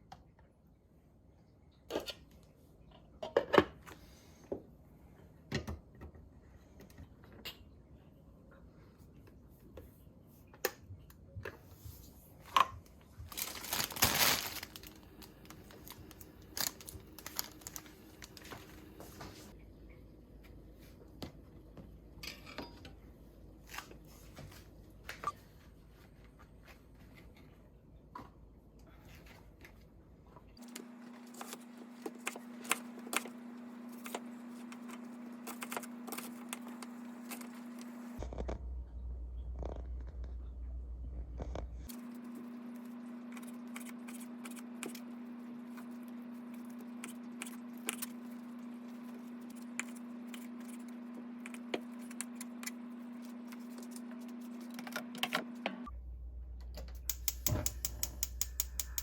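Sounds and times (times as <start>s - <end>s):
rustling crinkling: 12.9s - 19.5s.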